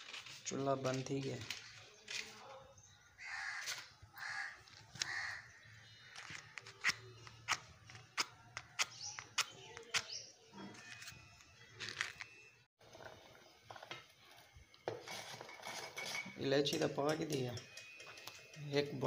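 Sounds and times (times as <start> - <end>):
bird calling: 3.2 - 8.0.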